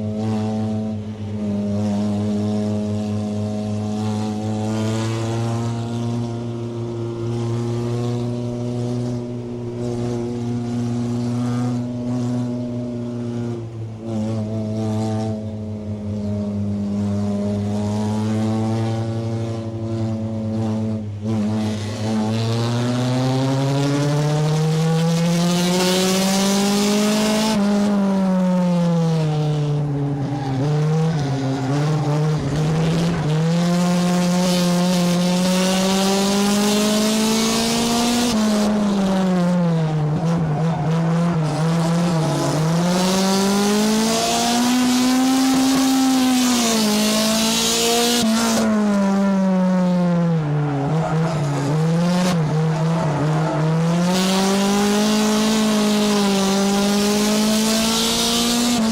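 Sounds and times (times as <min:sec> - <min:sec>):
race car engine revving: 0:00.0 - 0:58.9
wind and tyre noise: 0:00.0 - 0:58.9.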